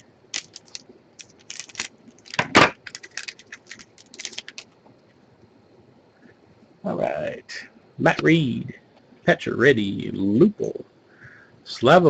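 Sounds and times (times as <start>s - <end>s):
foil wrapper crackle: 0.0s - 4.8s
cards clicking and rustling: 0.3s - 4.8s.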